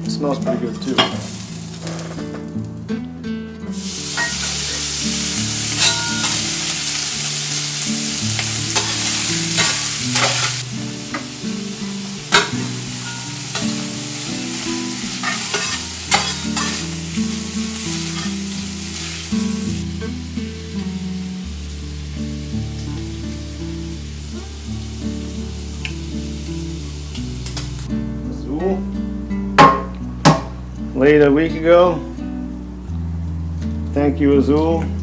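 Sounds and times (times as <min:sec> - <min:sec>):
potatoes sizzling in a pan: 0:00.8 - 0:02.5, 0:03.7 - 0:27.9.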